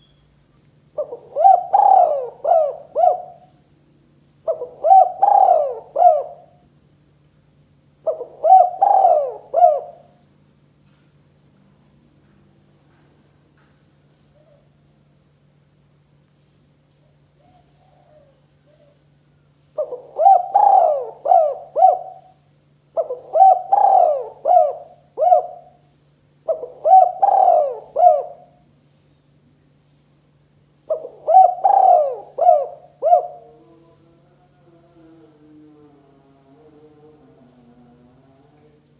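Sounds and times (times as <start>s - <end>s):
dove cooing: 1.0s - 3.6s, 4.4s - 6.6s, 8.0s - 10.2s, 17.4s - 19.0s, 19.8s - 25.8s, 26.4s - 28.6s, 30.9s - 33.8s.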